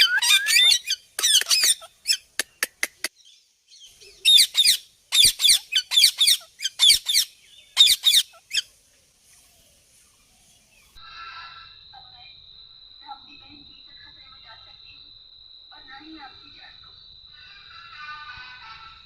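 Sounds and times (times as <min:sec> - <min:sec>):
parrot chirping: 0:00.0 - 0:03.1, 0:03.8 - 0:08.7.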